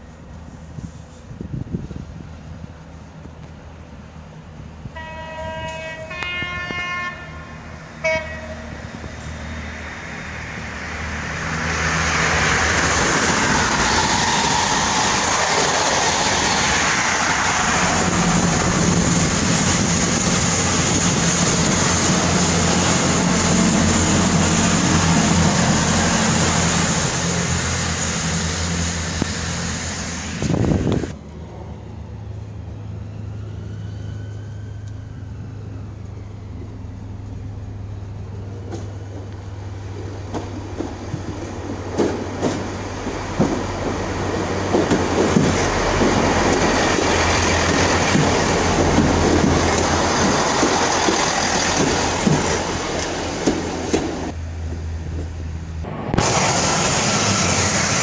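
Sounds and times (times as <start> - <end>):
train passing close by: 0.0 - 58.0
train horn blasts: 4.9 - 8.8.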